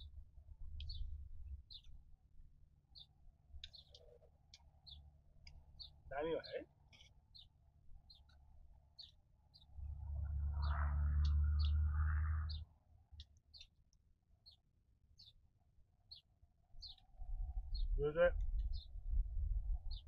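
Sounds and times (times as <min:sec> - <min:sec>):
wind rumbling on microphone: 0:00.0 - 0:01.9, 0:16.8 - 0:20.0
small bird chirping: 0:00.0 - 0:02.0, 0:02.9 - 0:13.8, 0:14.4 - 0:15.4, 0:16.1 - 0:19.0.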